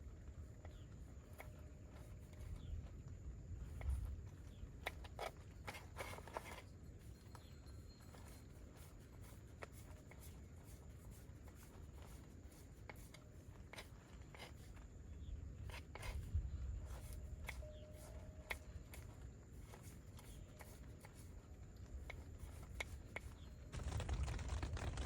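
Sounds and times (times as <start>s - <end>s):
faint low rumble: 23.4s - 25.0s.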